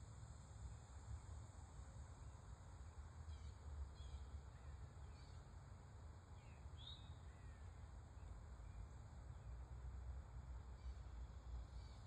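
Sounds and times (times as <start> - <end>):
faint bird chirps: 3.3 - 5.4.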